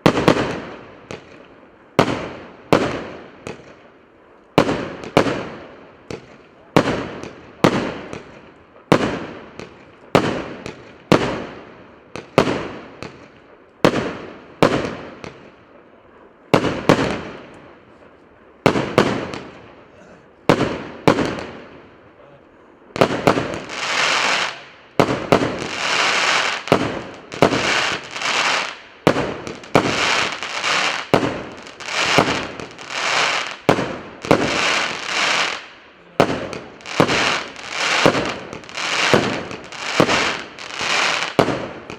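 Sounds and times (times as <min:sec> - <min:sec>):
firework cake shots: 0:23.0 - 0:41.9
firework hiss: 0:23.0 - 0:41.9.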